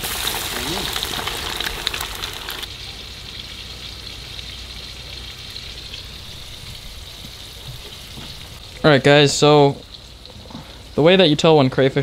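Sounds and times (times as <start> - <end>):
fish frying with crackling sizzle: 0.0 - 12.0.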